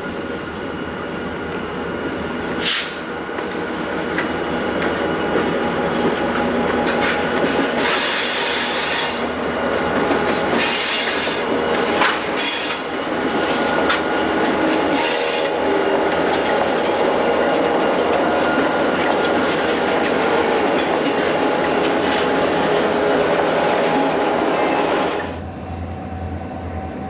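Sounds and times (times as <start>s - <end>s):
freight train rolling past: 0.0s - 27.0s
train wheels squealing on rails: 0.0s - 27.0s.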